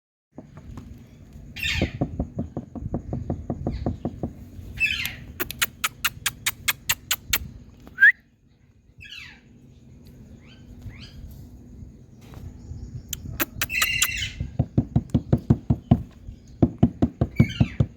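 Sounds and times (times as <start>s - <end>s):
faint short chirps: 5.0s - 8.2s
parrot calling: 13.2s - 14.5s.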